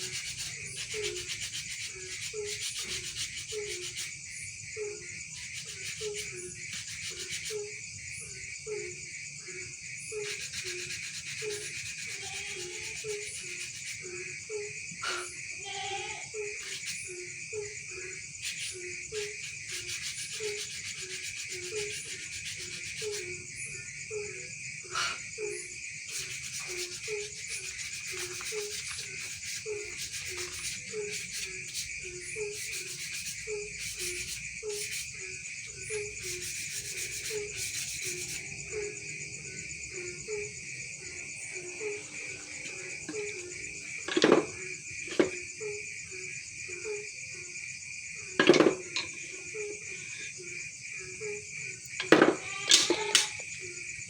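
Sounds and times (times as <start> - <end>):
rhythmic sanding strokes on wood: 0.0 - 4.3, 4.9 - 7.8, 10.2 - 14.3, 18.2 - 23.5, 25.6 - 39.0
crickets chirring: 0.0 - 54.0.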